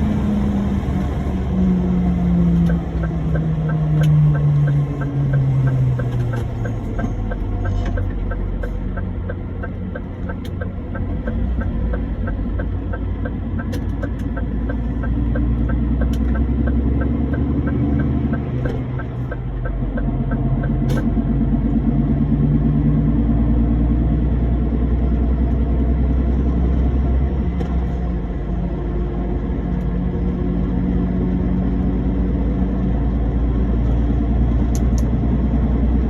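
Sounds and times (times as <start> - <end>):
lorry engine rumbling: 0.0 - 36.0
fast light ticking: 2.6 - 20.8
sharp clicks: 2.6 - 21.2.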